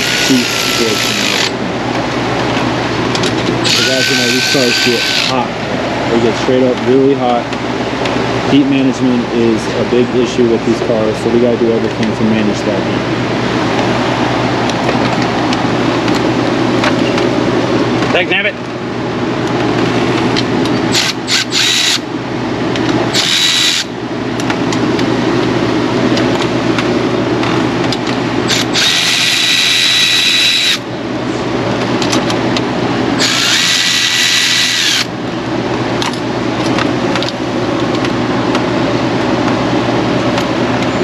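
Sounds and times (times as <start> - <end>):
power drill whining: 0.0 - 1.5, 3.6 - 5.3, 20.9 - 22.0, 23.1 - 23.9, 28.5 - 30.8, 33.2 - 35.1
steady low hum: 0.0 - 41.0.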